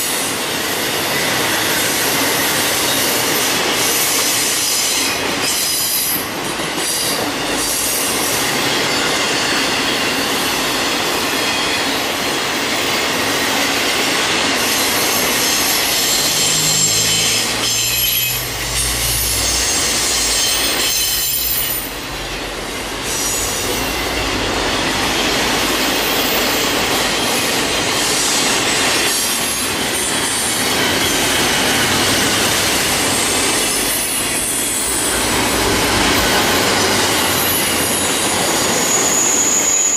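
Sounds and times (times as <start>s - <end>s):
train wheels clickety-clack: 0.0s - 39.9s
train wheels squealing on rail: 0.0s - 39.9s
deep train rumble: 14.3s - 28.9s, 29.7s - 39.2s.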